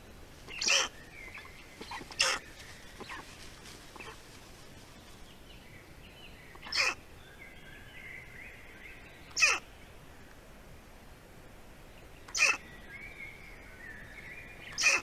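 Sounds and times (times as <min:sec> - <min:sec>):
faint whistled birdsong: 0:00.0 - 0:03.4, 0:05.0 - 0:10.3, 0:11.9 - 0:15.0
harsh bird calls: 0:00.0 - 0:04.2, 0:06.4 - 0:08.3, 0:08.9 - 0:09.8, 0:12.2 - 0:15.0.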